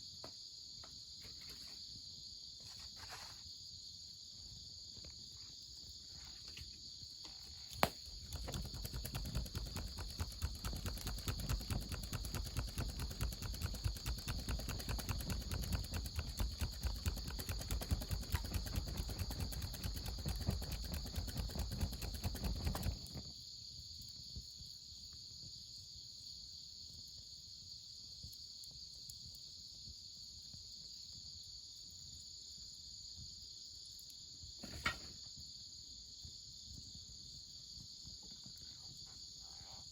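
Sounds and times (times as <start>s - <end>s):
crickets and insects chirping: 0.0s - 39.9s
rapid clattering: 8.2s - 23.0s.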